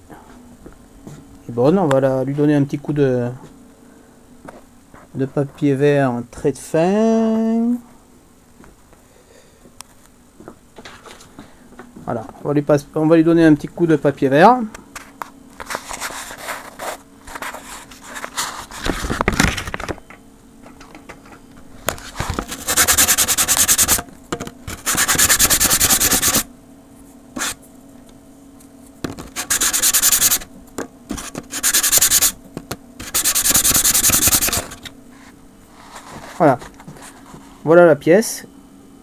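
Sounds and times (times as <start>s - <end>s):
sandpaper rubbing on plywood: 22.5s - 24.0s, 24.8s - 26.5s, 27.4s - 27.6s, 29.2s - 30.5s, 31.1s - 32.4s, 33.0s - 34.9s
soft handling noises: 35.1s - 37.7s.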